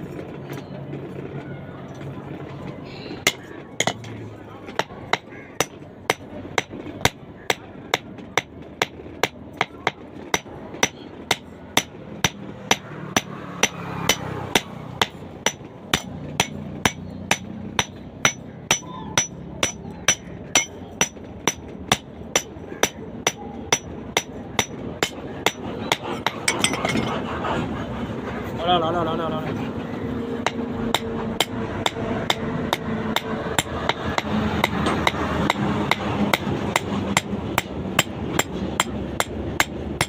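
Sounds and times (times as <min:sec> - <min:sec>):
hammer striking iron on anvil: 0:03.2 - 0:27.2, 0:30.4 - 0:40.0.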